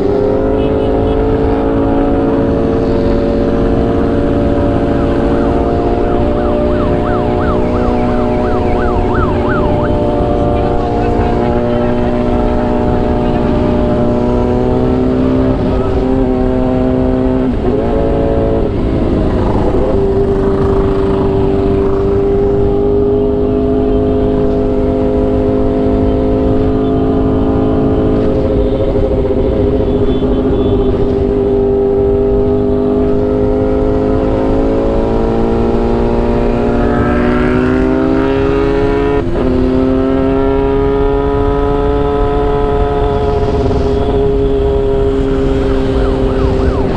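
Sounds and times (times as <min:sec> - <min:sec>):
motorcycle engine running: 0:00.0 - 0:17.6, 0:18.5 - 0:22.8
wind rushing: 0:17.3 - 0:22.6, 0:42.2 - 0:46.9.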